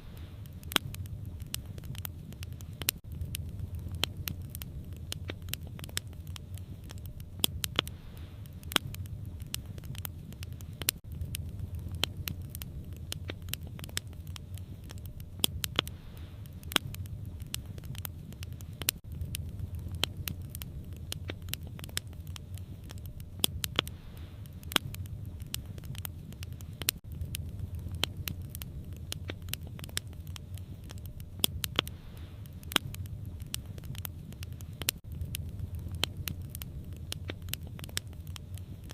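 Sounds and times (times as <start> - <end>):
low fire rumble: 0.0 - 38.9
wood fire crackling and popping: 0.0 - 38.9.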